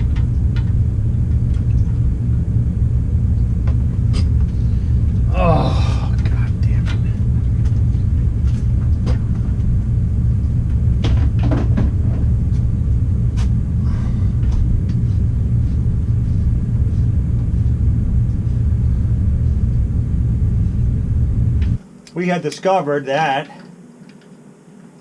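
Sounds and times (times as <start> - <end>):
low rumble: 0.0 - 21.8.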